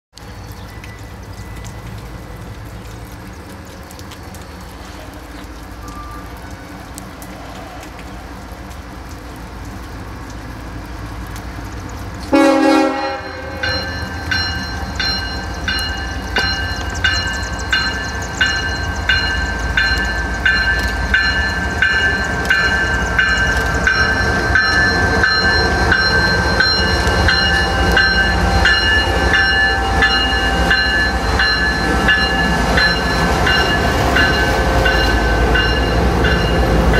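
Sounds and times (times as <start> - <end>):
diesel locomotives rumbling: 0.2 - 36.9
bell ringing: 13.3 - 36.7.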